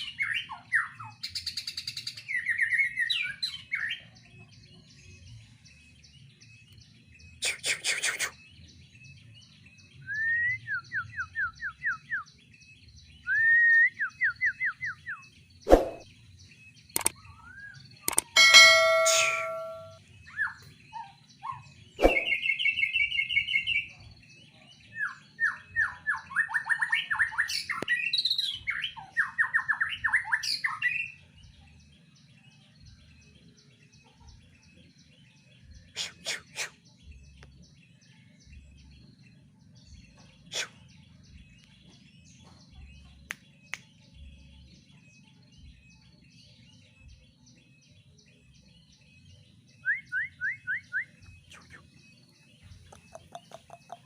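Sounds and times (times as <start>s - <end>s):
bird singing trilled phrases: 0.0s - 54.0s
short sharp bird calls: 7.4s - 8.4s, 15.7s - 16.1s, 22.0s - 22.5s, 35.9s - 36.9s, 40.5s - 40.9s.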